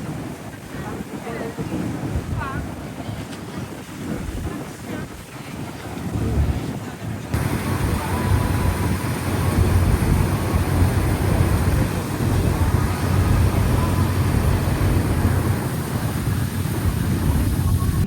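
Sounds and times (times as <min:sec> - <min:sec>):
water noise: 0:00.0 - 0:18.0
wind noise: 0:00.0 - 0:18.0
boat engine droning: 0:07.3 - 0:18.0.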